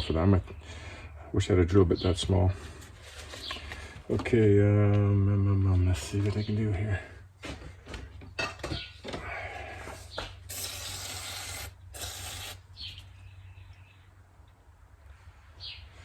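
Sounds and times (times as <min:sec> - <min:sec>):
short hissing spray bursts: 0:10.5 - 0:12.6.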